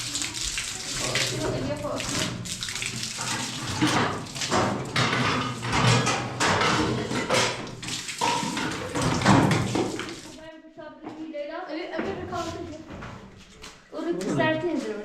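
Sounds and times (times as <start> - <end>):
water running and splashing: 0.0 - 10.4.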